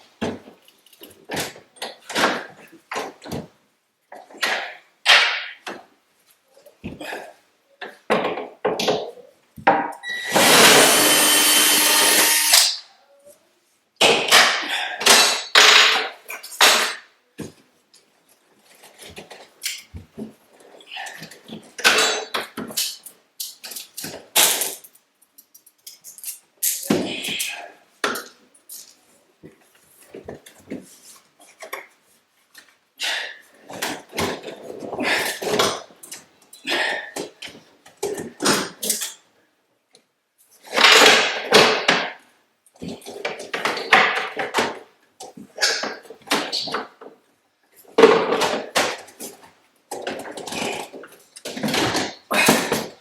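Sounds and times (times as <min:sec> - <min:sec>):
power drill backing out screws: 0:10.0 - 0:12.6.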